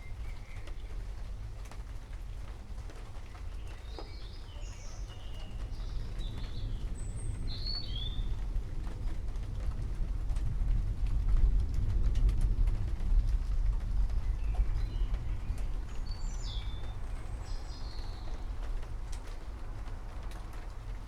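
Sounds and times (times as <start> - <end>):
rain drips: 0.0 - 21.0
distant thunder rumbling: 5.5 - 21.0
birds chirping: 14.3 - 18.6.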